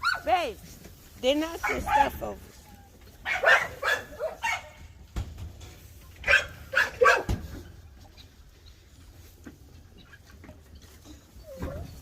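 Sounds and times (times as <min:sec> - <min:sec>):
dogs barking: 0:01.5 - 0:02.4, 0:03.2 - 0:04.9, 0:06.2 - 0:07.5.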